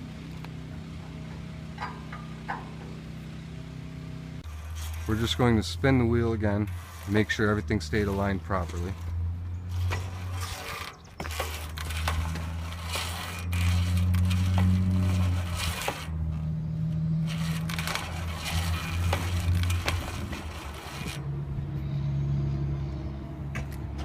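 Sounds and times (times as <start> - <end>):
steady low hum: 0.0 - 24.0
saw wheel scraping and clicking: 4.4 - 16.5, 17.1 - 21.3.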